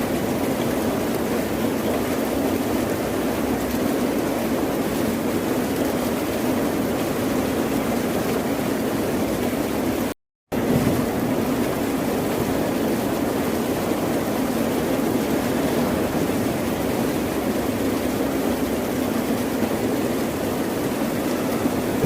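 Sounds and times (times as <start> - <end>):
ocean surf rushing: 10.5 - 22.0.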